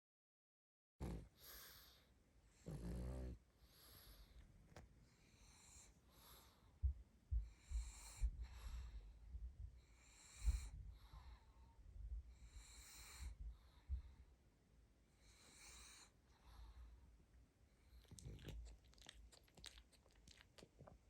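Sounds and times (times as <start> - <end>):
dog snoring: 1.0 - 4.3, 12.4 - 13.4, 15.2 - 16.8, 18.0 - 20.4.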